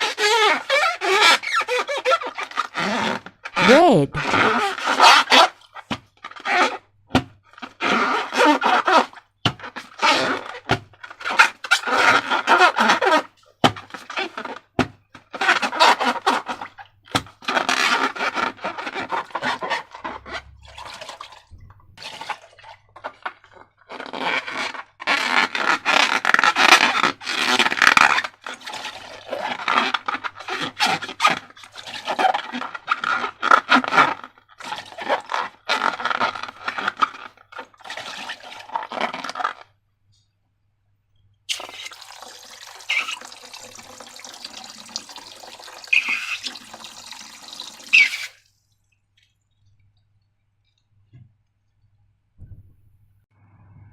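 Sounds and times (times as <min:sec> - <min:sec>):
wet slime squelching: 0:15.4 - 0:25.2, 0:41.5 - 0:50.9.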